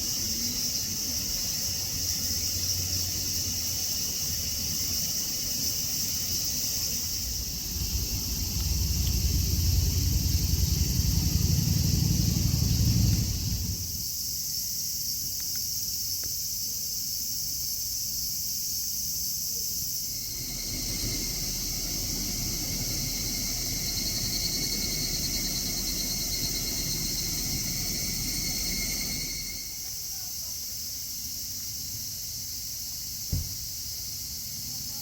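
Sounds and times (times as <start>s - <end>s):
insects calling high-pitched: 0.0s - 35.0s
pulsing insect call: 0.0s - 35.0s
low rumble: 7.0s - 14.0s.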